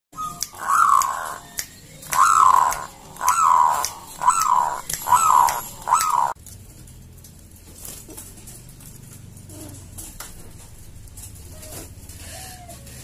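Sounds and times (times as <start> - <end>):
dove cooing: 0.3 - 1.5, 2.1 - 6.4.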